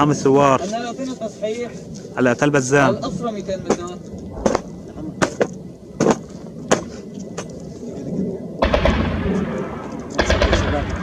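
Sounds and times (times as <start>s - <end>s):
automatic gunfire: 8.6s - 9.5s, 10.2s - 11.0s
single gunshots: 8.6s - 11.0s.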